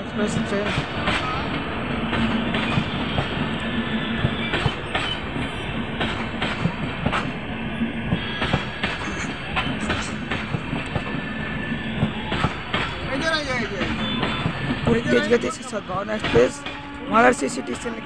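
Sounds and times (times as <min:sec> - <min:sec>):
train rolling past: 0:00.0 - 0:18.0
wheels clacking over rail joints: 0:00.4 - 0:03.4, 0:04.2 - 0:07.4, 0:08.1 - 0:11.2, 0:11.9 - 0:15.1.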